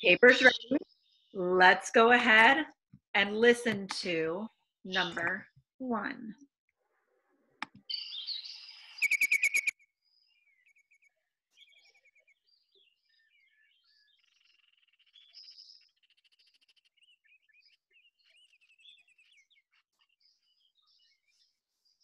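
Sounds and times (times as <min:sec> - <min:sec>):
bird chirps and trills: 0:00.0 - 0:01.4, 0:04.9 - 0:05.4, 0:07.8 - 0:22.0
bird rattle call: 0:09.0 - 0:09.7.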